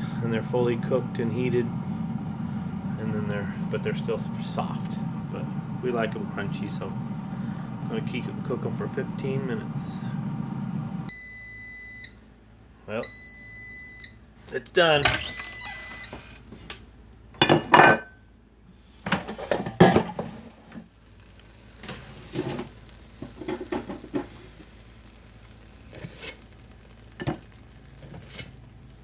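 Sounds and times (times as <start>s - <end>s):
air fryer beep: 0.0s - 12.3s, 12.9s - 16.4s, 19.1s - 29.0s
kitchenware knocks and clinks: 15.0s - 15.6s, 17.4s - 18.1s, 19.1s - 20.3s.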